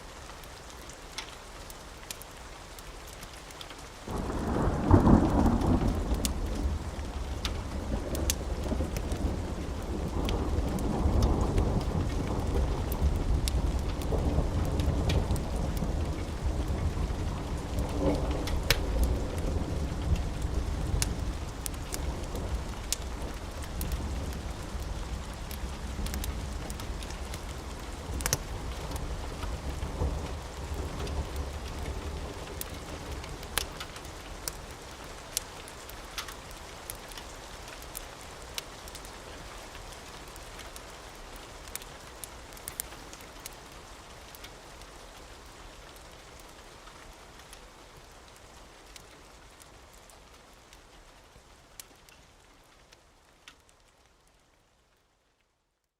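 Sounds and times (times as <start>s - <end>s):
steady rain: 0.0s - 55.9s
sharp crackles: 3.0s - 45.2s
low thunder rumble: 4.1s - 33.8s.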